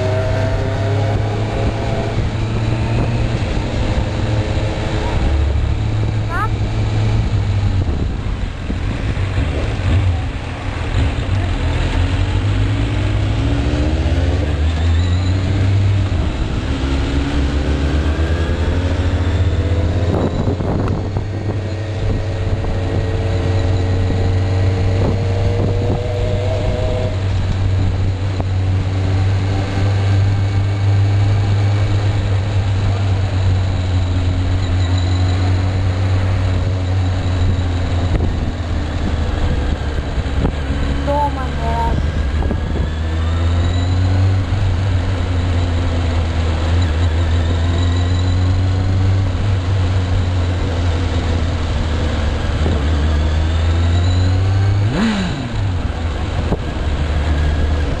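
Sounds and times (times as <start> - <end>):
wind rush on microphone: 0.0 - 11.3, 18.2 - 33.6, 35.6 - 45.2
motorcycle engine revving: 0.0 - 58.0.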